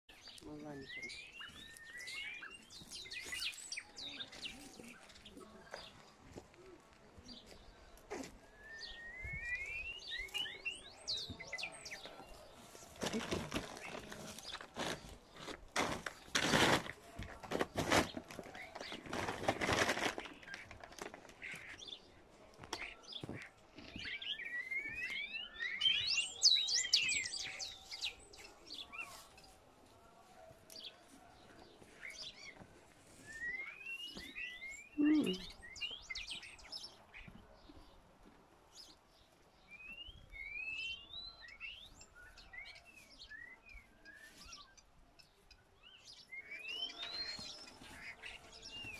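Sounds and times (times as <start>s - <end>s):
small birds chirping: 0.1s - 48.9s
donkeys crunching straw: 12.4s - 21.8s.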